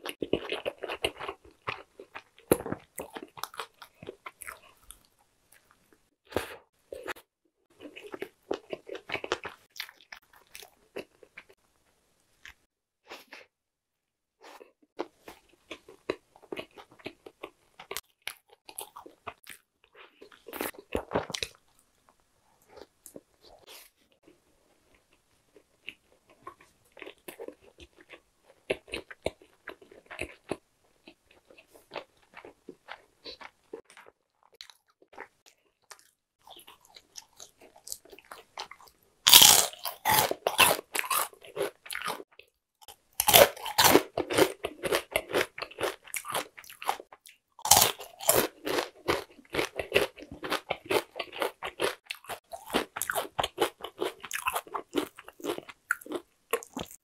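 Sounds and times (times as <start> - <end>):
chewing crispy food: 0.0 - 13.5, 14.4 - 57.0
crisp crunching bites: 39.3 - 42.2, 43.2 - 47.0, 47.6 - 57.0.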